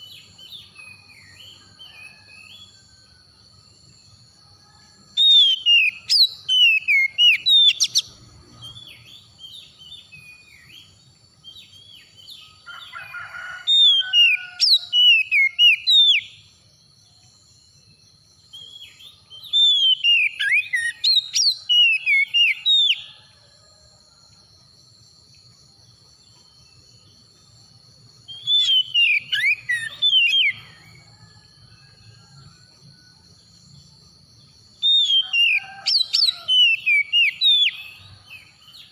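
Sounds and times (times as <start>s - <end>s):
bird singing whistled phrases: 5.2s - 8.1s, 14.0s - 16.3s, 18.7s - 23.1s, 28.3s - 30.8s.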